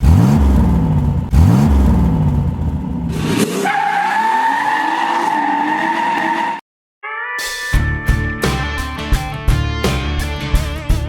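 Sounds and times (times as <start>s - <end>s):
car engine revving: 0.0s - 6.6s
high tire squeal: 3.2s - 6.6s.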